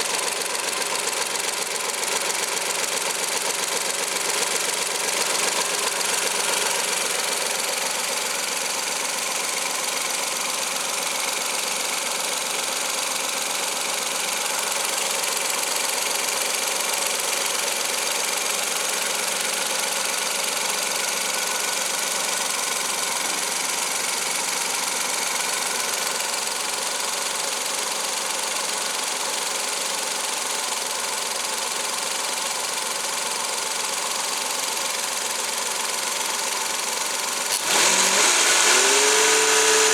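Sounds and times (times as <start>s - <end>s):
car engine running: 0.0s - 10.7s, 36.2s - 39.9s.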